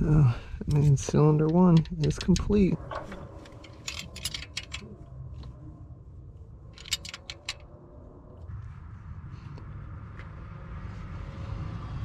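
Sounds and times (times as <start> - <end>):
low steady hum: 0.0 - 12.0
hand tools clicking and clinking: 0.7 - 4.9, 6.8 - 7.7.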